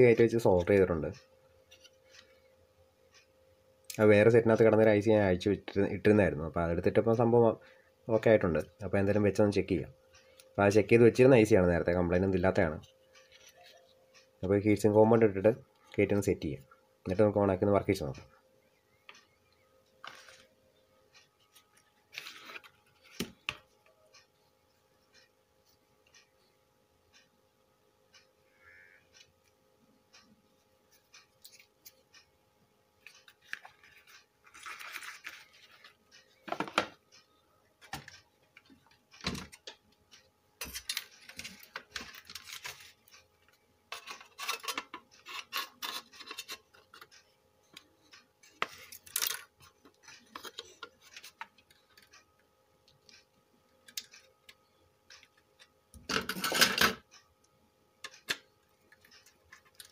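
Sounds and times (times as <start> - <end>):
small metal parts and tools clinking: 56.1 - 57.0.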